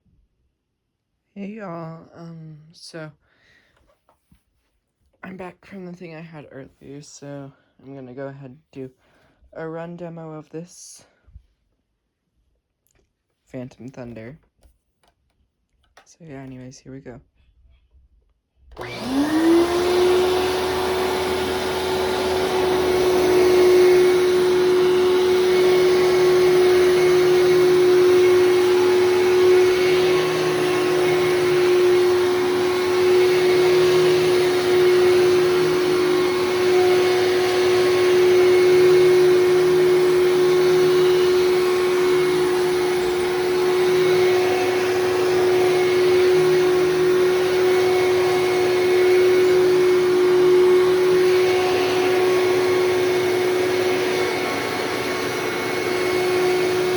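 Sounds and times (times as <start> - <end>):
vacuum cleaner motor whine: 18.7 - 56.9.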